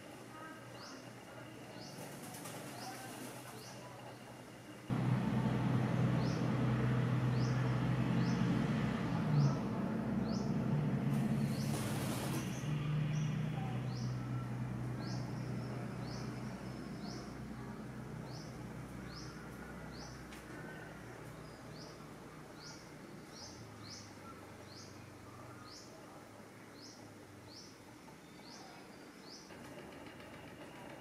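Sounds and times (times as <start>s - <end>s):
low hum: 4.9s - 19.9s.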